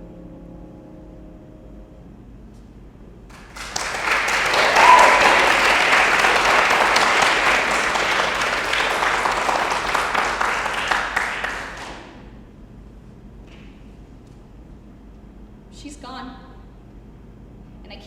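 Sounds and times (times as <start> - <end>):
piano chord: 0.0 - 2.6
audience applause: 3.3 - 12.2
whistle from audience: 4.0 - 6.6.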